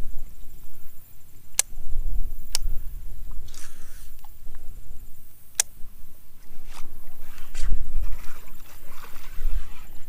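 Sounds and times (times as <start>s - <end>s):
steady low rumble: 0.0s - 10.0s
sharp clicks: 1.5s - 1.8s, 2.5s - 4.6s, 5.5s - 5.8s.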